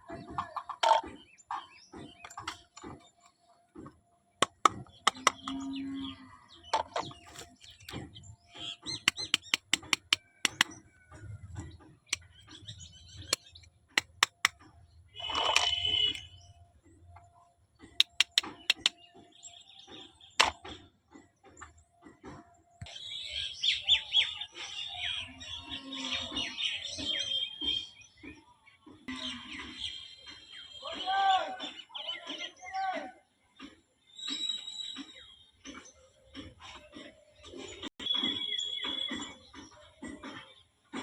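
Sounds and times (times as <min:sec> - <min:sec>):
toy kitchen pieces clicking: 0:09.0 - 0:10.7, 0:13.3 - 0:14.6, 0:15.2 - 0:16.2, 0:18.0 - 0:19.0
toy pieces scraping: 0:15.2 - 0:16.2.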